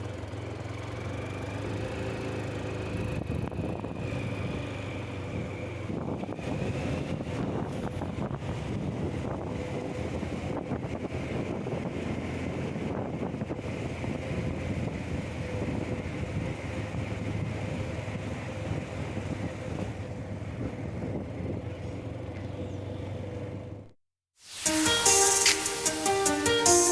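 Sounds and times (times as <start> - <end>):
wind buffeting microphone: 2.9 - 22.1.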